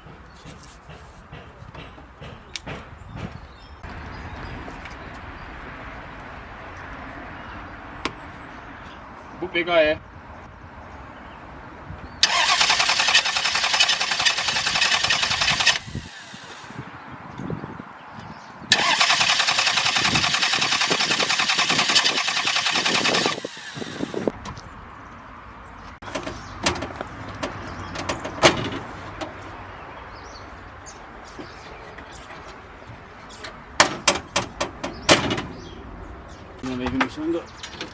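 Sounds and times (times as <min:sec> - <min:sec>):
sharp clicks and knocks: 0:00.0 - 0:03.4, 0:26.0 - 0:29.4, 0:33.3 - 0:35.5
starter motor cranking engine: 0:12.2 - 0:16.8, 0:18.7 - 0:24.3.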